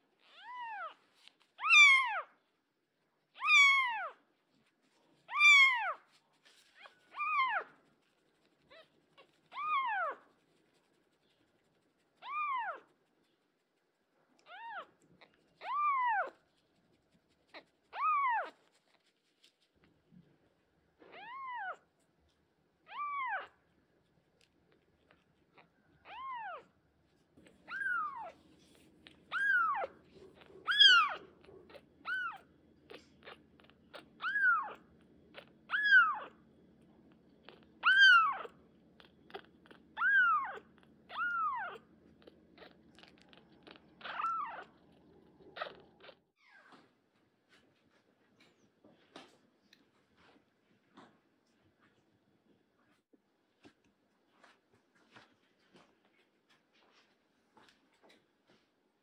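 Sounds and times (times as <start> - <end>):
kitten mewing: 12.2 - 12.9, 29.3 - 36.4, 37.4 - 46.6.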